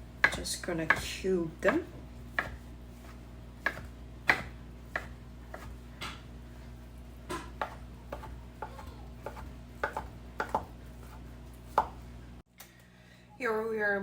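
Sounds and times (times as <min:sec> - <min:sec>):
knife knocking on cutting board: 0:07.3 - 0:10.7.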